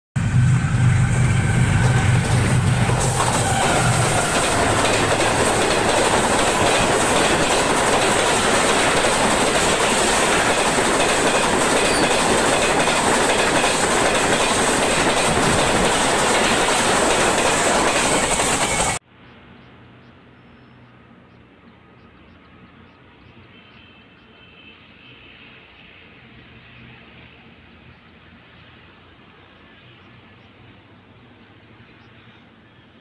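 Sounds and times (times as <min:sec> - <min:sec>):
train coaches rushing past: 0:00.2 - 0:19.0.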